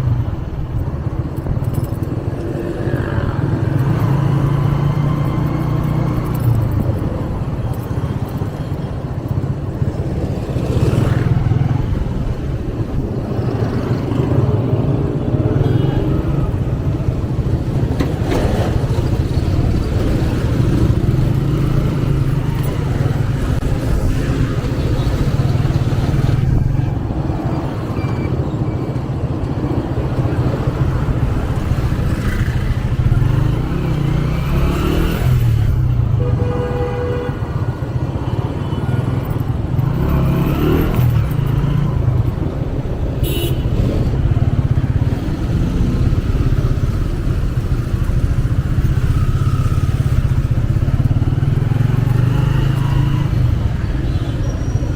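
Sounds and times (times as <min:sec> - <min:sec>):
road traffic passing: 0:00.0 - 0:54.9
motorcycle engine running: 0:40.3 - 0:54.9.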